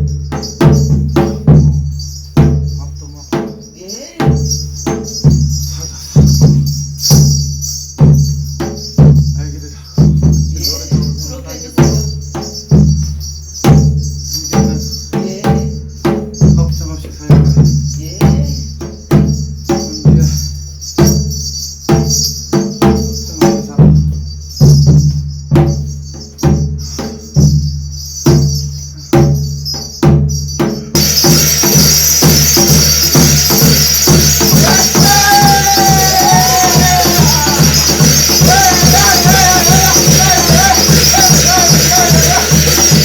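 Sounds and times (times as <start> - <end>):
metallic jingling: 0.0 - 43.0
wavering pitched melody: 29.6 - 43.0.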